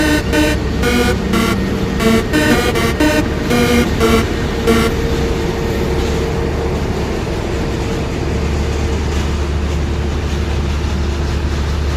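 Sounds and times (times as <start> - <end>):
electronic music: 0.0 - 6.0
jet engines whining: 0.0 - 8.7.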